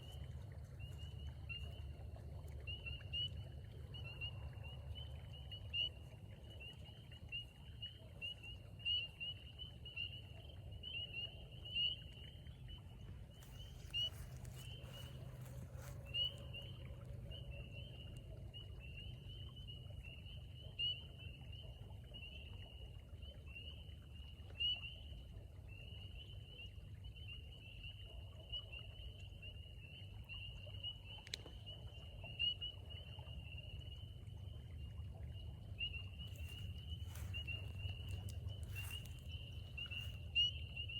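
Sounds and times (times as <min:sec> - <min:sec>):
chorus of peeping frogs: 0:00.0 - 0:40.9
steady low rumble: 0:34.2 - 0:40.9.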